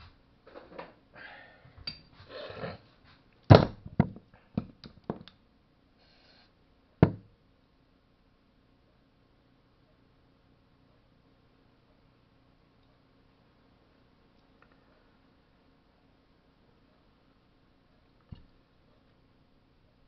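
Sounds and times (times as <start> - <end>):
rustling and scraping on workbench: 2.1 - 3.3
sharp knocks and clicks: 3.5 - 5.4.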